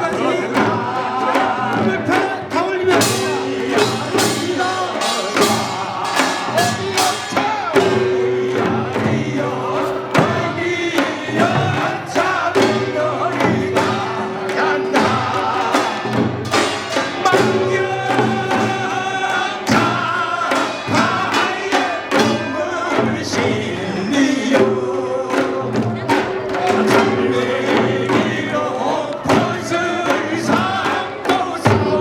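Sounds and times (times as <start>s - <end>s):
drums and metal gongs: 0.0s - 32.0s.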